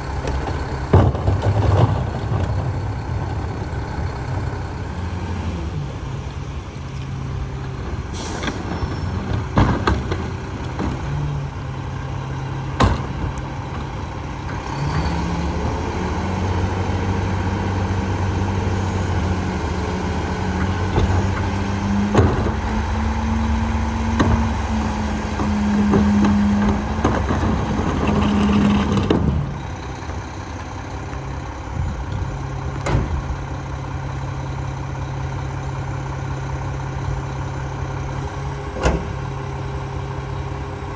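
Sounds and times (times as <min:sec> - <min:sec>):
garbage truck diesel engine: 0:00.0 - 0:40.9
air brake hiss: 0:08.0 - 0:08.6.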